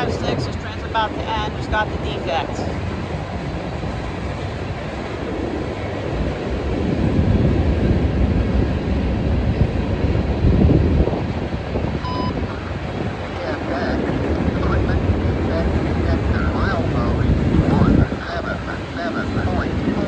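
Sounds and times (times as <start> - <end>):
wind on microphone: 0.0 - 20.0
short electronic beep: 12.0 - 12.4.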